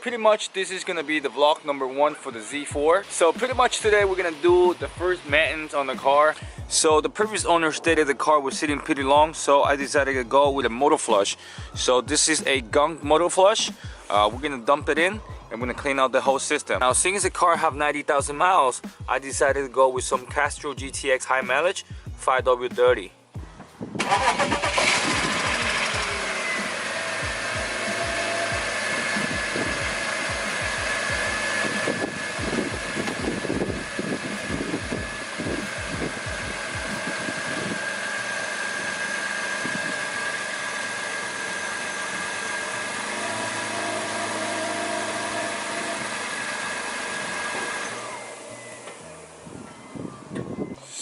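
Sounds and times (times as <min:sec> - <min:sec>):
car engine starting and idling: 0:00.0 - 0:16.0, 0:23.4 - 0:50.8
uneven low thumping: 0:06.4 - 0:07.0, 0:29.3 - 0:37.8.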